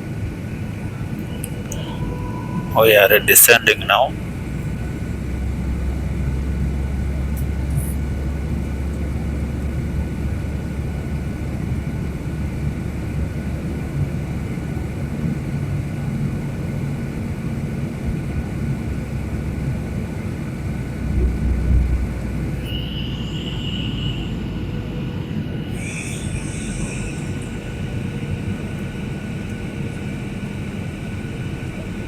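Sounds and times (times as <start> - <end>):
airliner cabin engine noise: 0.0 - 32.0
faint steady tone: 1.2 - 4.9, 21.2 - 29.5.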